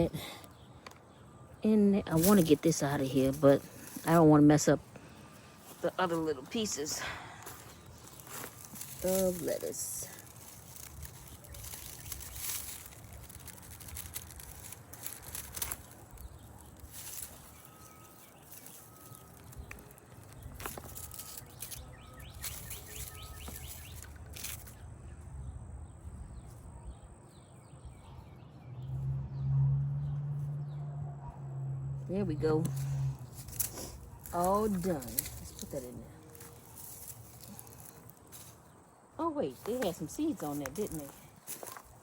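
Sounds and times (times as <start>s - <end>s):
dry plant stalks rustling: 1.7s - 25.4s, 32.0s - 42.0s
faint bird chirps: 16.1s - 29.0s.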